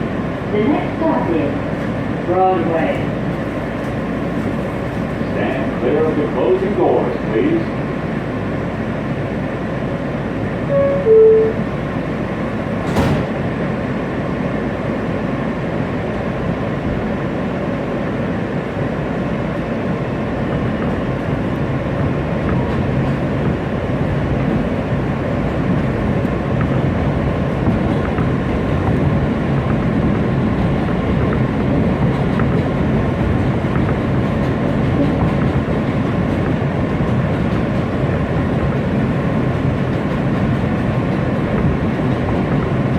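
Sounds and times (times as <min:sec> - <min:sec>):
subway train running: 0:00.0 - 0:42.9
two-note door chime: 0:10.7 - 0:11.7.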